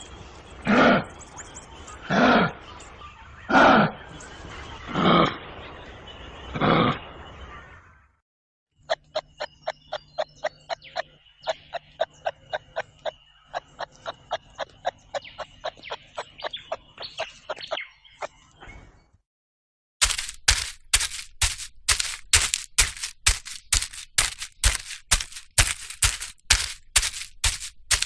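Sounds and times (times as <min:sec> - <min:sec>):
kangaroo clicking clucks: 0:08.8 - 0:18.3, 0:20.0 - 0:28.0.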